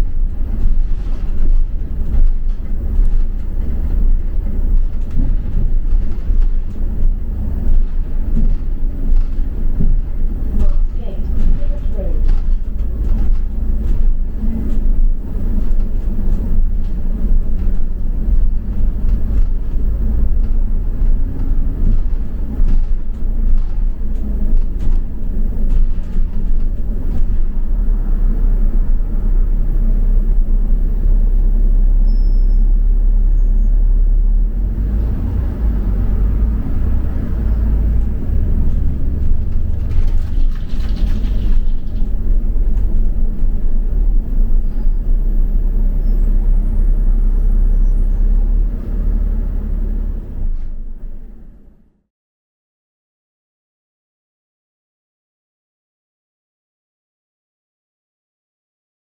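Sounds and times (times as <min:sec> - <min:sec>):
bus engine and road rumble: 0:00.0 - 0:52.1
small rattles: 0:38.0 - 0:44.0.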